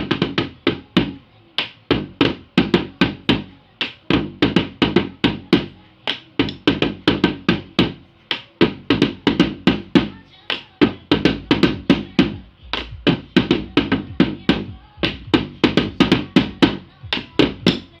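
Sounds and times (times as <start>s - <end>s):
drum beaten in quick rhythm: 0.0s - 18.0s.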